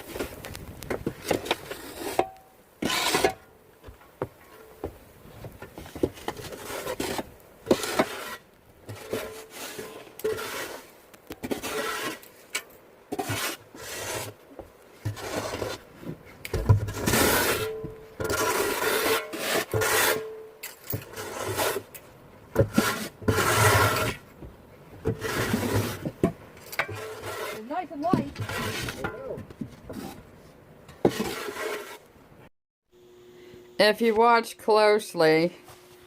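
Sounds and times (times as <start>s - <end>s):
snow shovel scraping snow: 1.1s - 3.4s, 5.9s - 12.5s, 13.1s - 14.4s, 15.0s - 15.9s, 16.8s - 20.3s, 21.0s - 21.9s, 22.6s - 24.3s, 25.0s - 26.2s, 26.8s - 29.3s, 31.0s - 32.0s.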